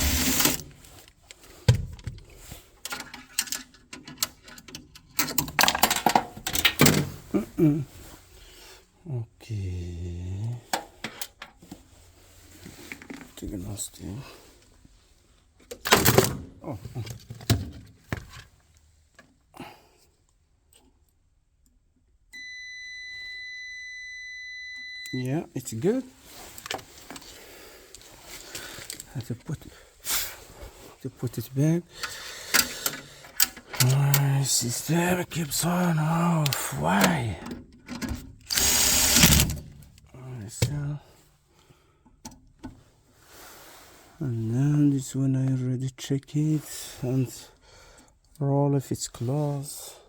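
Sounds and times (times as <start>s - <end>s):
parts being handled: 0.0s - 7.3s, 26.2s - 29.7s, 32.0s - 34.3s
faint clicks and knocks of tools: 32.0s - 34.0s.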